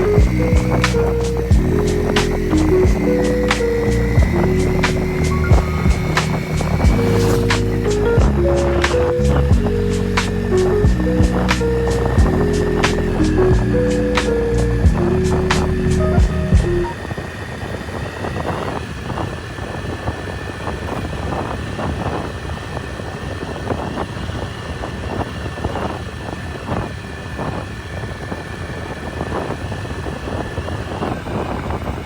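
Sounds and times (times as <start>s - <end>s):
vehicle engine rumble: 0.0s - 17.8s
faint steady whine: 0.0s - 21.5s.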